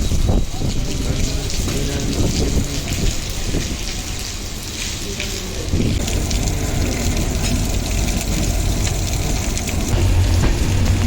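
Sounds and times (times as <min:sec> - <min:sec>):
rain falling: 0:00.0 - 0:11.0
train rumbling on rails: 0:05.8 - 0:11.0.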